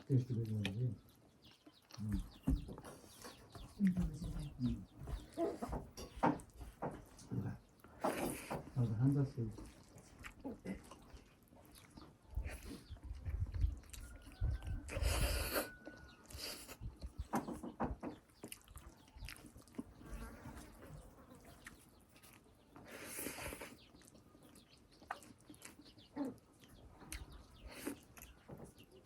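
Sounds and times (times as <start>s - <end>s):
chewing and lip-smacking: 0.1s - 4.0s, 9.5s - 17.3s, 18.1s - 20.1s, 20.9s - 29.0s.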